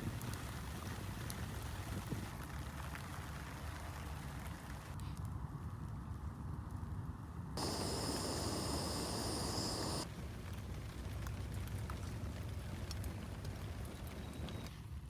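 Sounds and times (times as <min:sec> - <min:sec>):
campfire crackling and popping: 0:07.6 - 0:10.1
steady hissing rush: 0:07.6 - 0:10.1.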